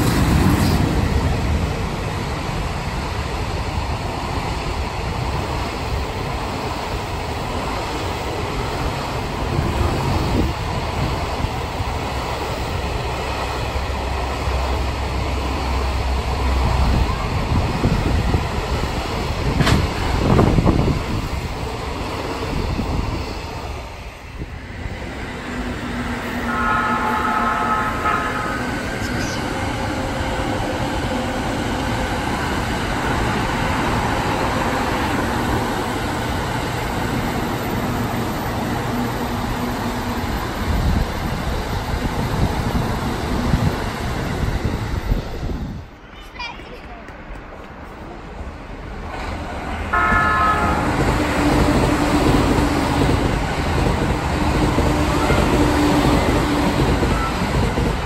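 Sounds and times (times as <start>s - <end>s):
train running past: 0.0s - 58.0s
train horn chord: 26.4s - 29.5s, 49.9s - 51.4s.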